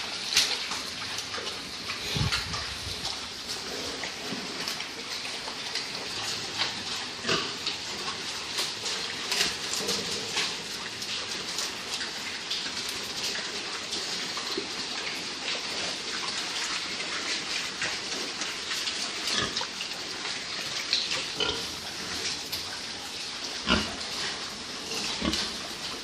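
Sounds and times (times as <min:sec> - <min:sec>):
steady hiss: 0:00.0 - 0:26.0
pigs grunting: 0:01.2 - 0:11.6, 0:19.1 - 0:20.4, 0:21.1 - 0:26.0.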